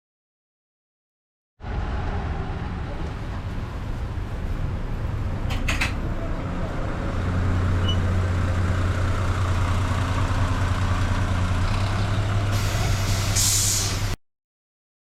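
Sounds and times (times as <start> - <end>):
diesel vehicle idling: 3.6 - 14.2
short air hiss: 12.6 - 14.2.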